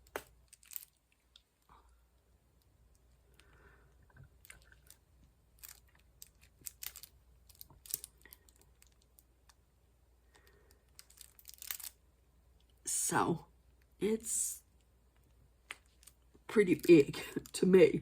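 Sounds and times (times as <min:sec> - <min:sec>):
plastic crinkles: 0:00.1 - 0:01.4, 0:05.6 - 0:09.1, 0:10.9 - 0:12.0.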